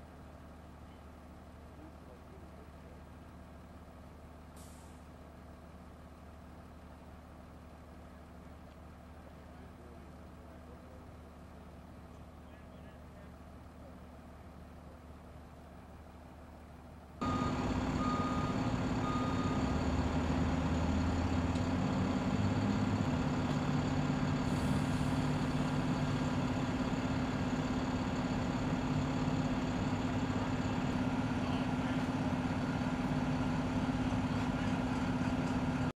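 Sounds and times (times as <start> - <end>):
truck engine running: 0.0 - 35.9
reversing alarm beeps: 17.2 - 21.5.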